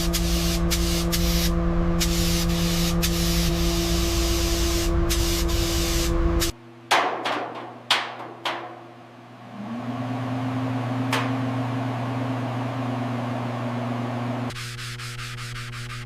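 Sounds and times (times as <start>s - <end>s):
sharp knocks: 6.9s - 8.9s.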